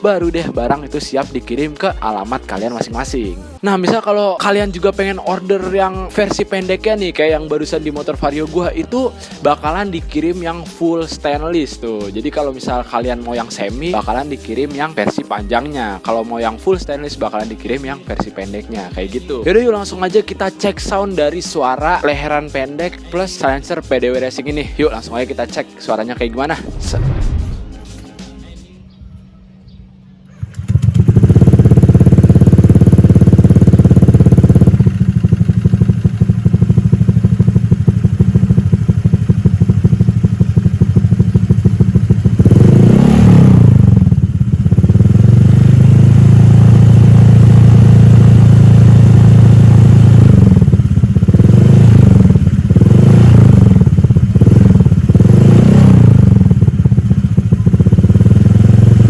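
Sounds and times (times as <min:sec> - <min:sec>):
scooter engine idling and revving: 0:04.5 - 0:10.6, 0:11.2 - 0:20.0, 0:29.6 - 0:59.0.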